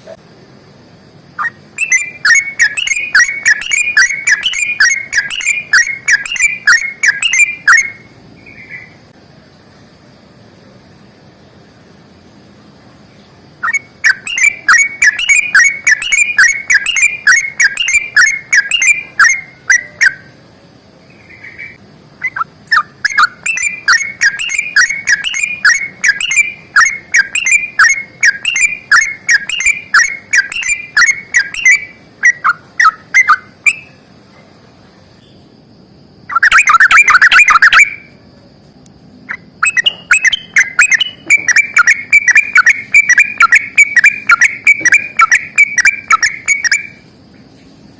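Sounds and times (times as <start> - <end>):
bulbul chattering calls: 1.4 - 9.0, 13.6 - 20.3, 21.2 - 34.0, 36.3 - 38.0, 39.6 - 47.0.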